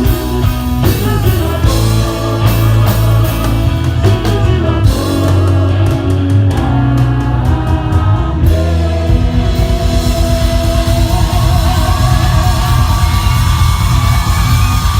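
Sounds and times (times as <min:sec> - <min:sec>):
drum kit: 0:00.0 - 0:14.9
electric guitar: 0:00.0 - 0:14.9
live rock band playing: 0:00.0 - 0:14.9
person singing: 0:00.0 - 0:14.9.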